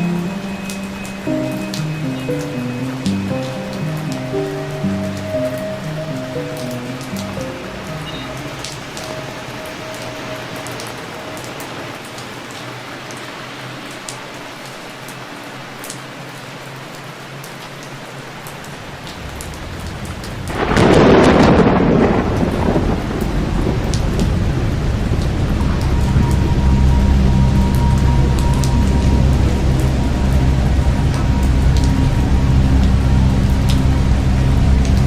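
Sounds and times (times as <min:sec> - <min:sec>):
water dripping: 0:00.0 - 0:16.1, 0:22.3 - 0:35.0
steady rain: 0:00.0 - 0:35.0
thunder rumbling: 0:18.9 - 0:35.0.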